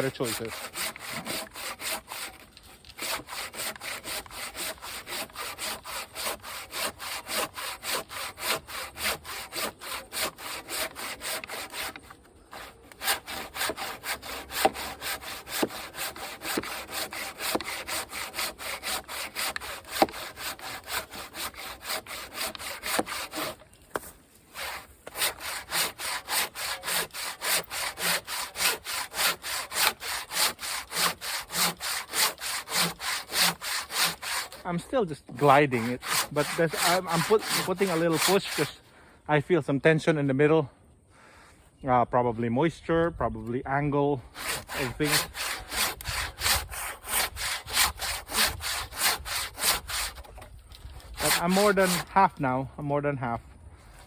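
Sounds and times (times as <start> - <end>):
hand saw cutting wood: 0.0 - 38.9, 44.2 - 52.6.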